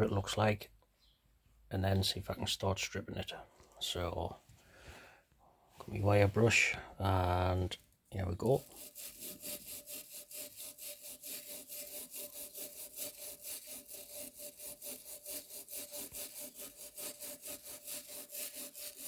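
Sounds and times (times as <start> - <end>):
wire brush scrubbing metal: 8.4 - 19.0.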